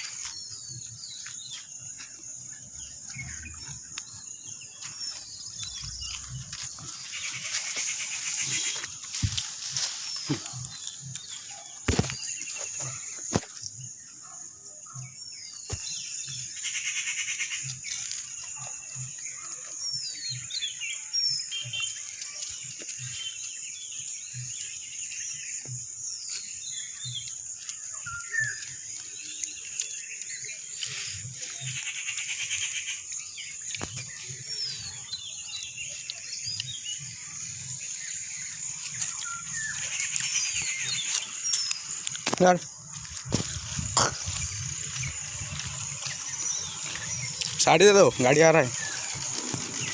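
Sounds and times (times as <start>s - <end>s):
birds chirping: 0.0s - 49.9s
steady high-pitched hiss: 14.8s - 49.9s.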